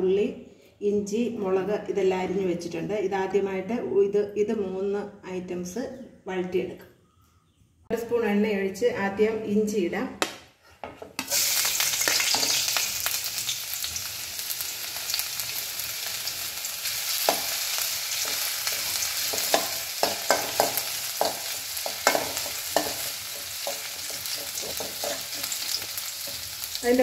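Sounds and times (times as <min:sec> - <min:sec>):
ginger sizzling in hot oil: 0:11.2 - 0:27.0
spoon scraping metal pan: 0:17.1 - 0:26.8.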